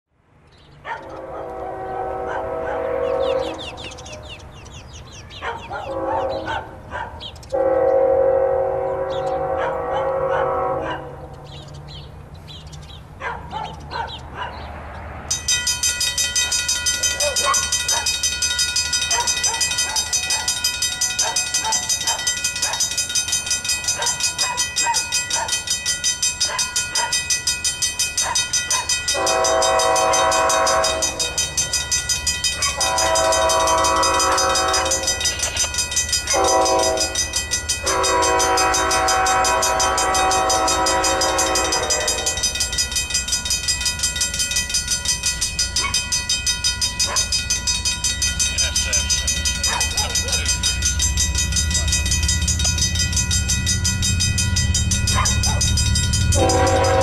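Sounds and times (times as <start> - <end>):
low rumble of train: 0.1 - 57.0
locomotive air horn blowing: 1.0 - 4.3, 5.8 - 6.7, 7.5 - 11.4, 29.1 - 31.4, 32.6 - 35.5, 36.3 - 42.5, 56.3 - 57.0.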